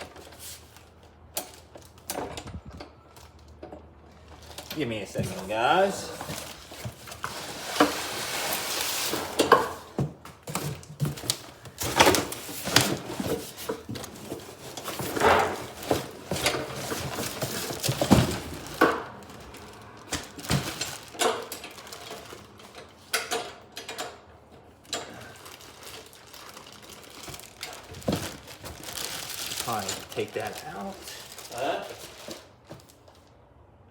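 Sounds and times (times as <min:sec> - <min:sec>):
packaging rustling: 0:04.2 - 0:22.9, 0:25.1 - 0:33.4
parts knocking and rattling: 0:09.2 - 0:25.5.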